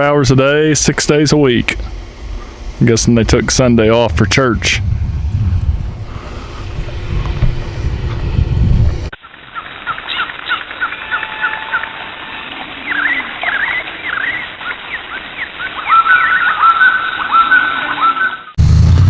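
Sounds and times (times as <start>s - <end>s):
low outdoor rumble: 0.0s - 9.2s, 18.6s - 19.0s
wild birds chirping: 0.0s - 9.2s.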